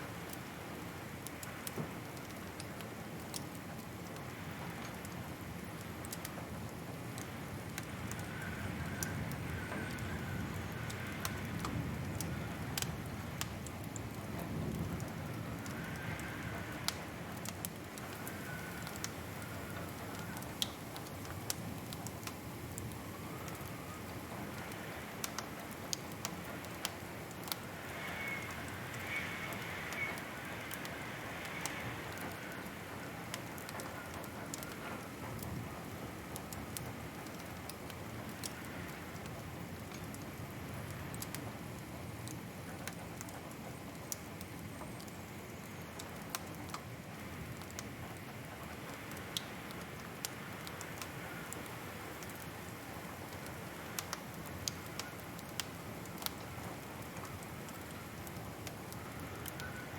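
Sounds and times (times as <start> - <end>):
wood fire crackling: 0.0 - 59.9
faint wavering whistle: 28.0 - 30.3.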